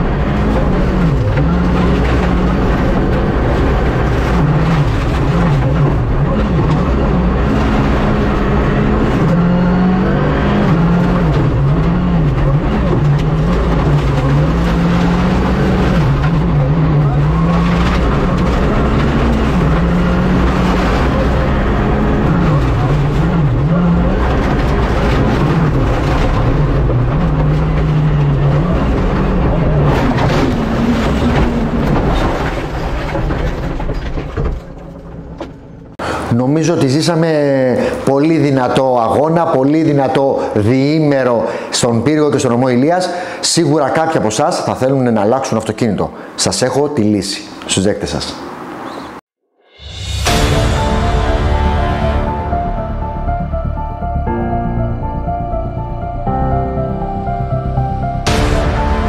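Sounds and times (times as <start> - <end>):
rally car engine revving: 0.0 - 36.2.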